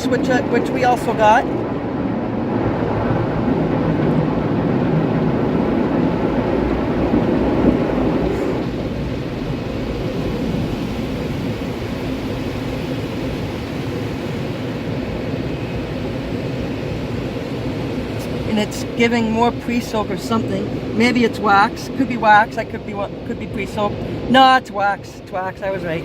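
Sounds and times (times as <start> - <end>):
car wash water jets spraying: 0.0 - 26.0.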